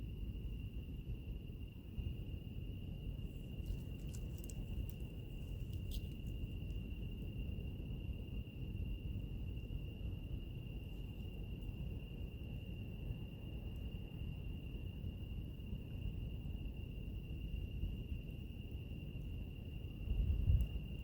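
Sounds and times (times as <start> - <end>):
crickets trilling: 0.0 - 21.0
fire crackles and pops: 3.5 - 6.6.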